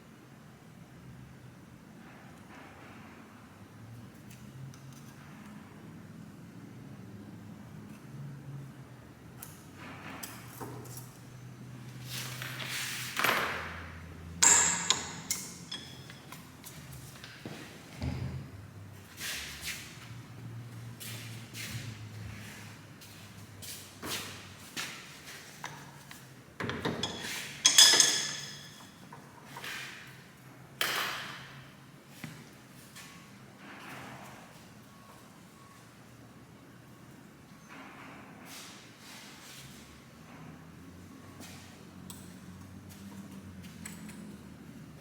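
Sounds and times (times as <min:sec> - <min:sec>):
metal parts knocking and clinking: 0:14.4 - 0:16.5, 0:26.6 - 0:29.0
metal tools handled on workbench: 0:14.4 - 0:16.8, 0:25.6 - 0:29.7.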